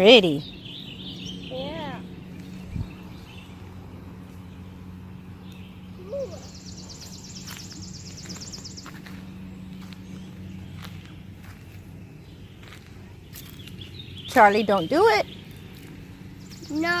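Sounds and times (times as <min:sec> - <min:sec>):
steady low hum: 0:00.0 - 0:17.0
songbird rapid high trill: 0:05.7 - 0:09.0.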